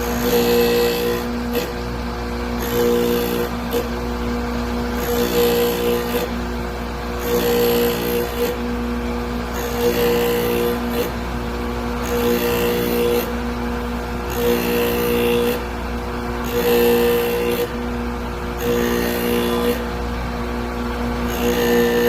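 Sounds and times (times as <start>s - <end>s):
drill bit grinding on wheel: 0.0s - 4.0s, 4.9s - 6.4s, 7.1s - 8.7s, 9.4s - 11.2s, 11.9s - 13.4s, 14.2s - 17.8s, 18.4s - 19.9s, 21.0s - 22.0s
grinding machine motor hum: 0.0s - 22.0s.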